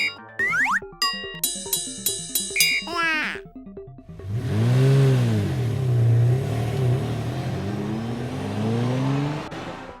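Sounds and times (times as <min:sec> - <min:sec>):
vehicle engine revving: 0:04.1 - 0:09.8.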